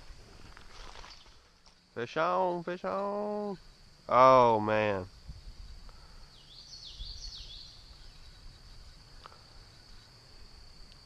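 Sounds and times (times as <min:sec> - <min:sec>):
insects droning: 0:00.0 - 0:11.0
songbird singing: 0:00.0 - 0:11.0.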